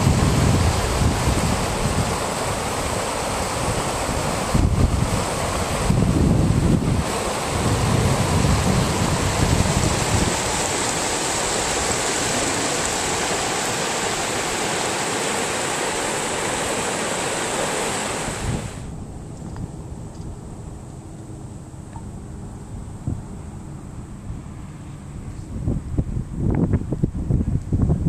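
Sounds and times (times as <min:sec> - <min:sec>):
floodwater rushing: 0:00.0 - 0:19.2
wind buffeting microphone: 0:00.0 - 0:20.6, 0:22.7 - 0:28.0.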